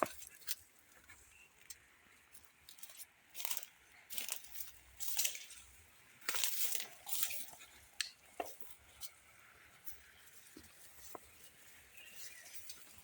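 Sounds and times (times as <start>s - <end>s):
footsteps in wet grass and mud: 2.2s - 7.7s.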